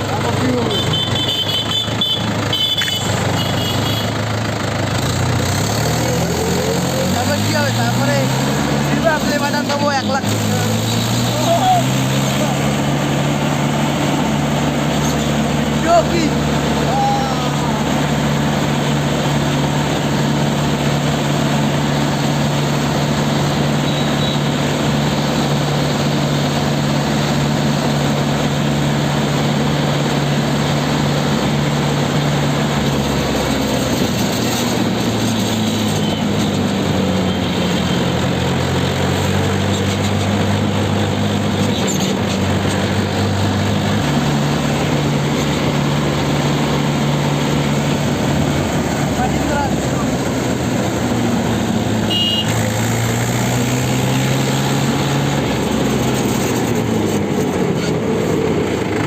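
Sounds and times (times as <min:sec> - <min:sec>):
road noise: 0:00.0 - 0:59.0
tractor diesel engine running: 0:00.0 - 0:59.0.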